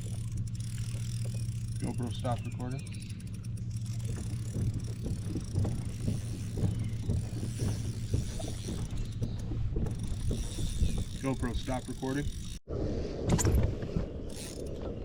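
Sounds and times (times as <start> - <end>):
small knocks: 0.0 - 11.7
kayak drive humming: 0.0 - 12.6, 13.8 - 15.0.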